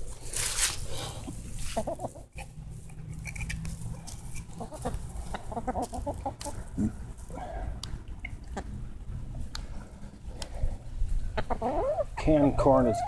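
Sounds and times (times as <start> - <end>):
chickens clucking: 1.6 - 2.5, 4.4 - 7.3, 8.0 - 8.8, 11.2 - 13.0.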